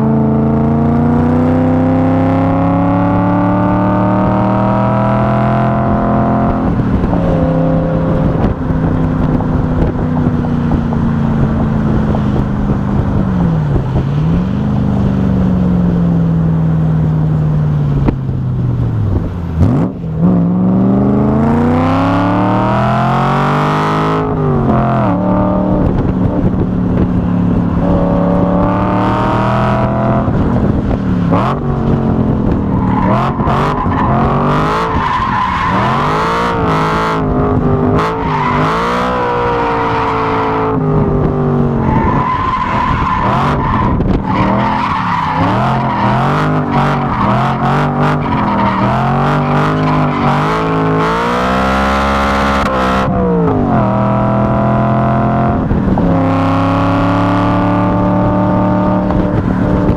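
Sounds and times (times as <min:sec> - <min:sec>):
car engine revving hard: 0:00.0 - 0:10.0, 0:19.1 - 0:59.9
wind buffeting microphone: 0:01.7 - 0:16.5, 0:17.8 - 0:51.4, 0:53.0 - 0:59.9.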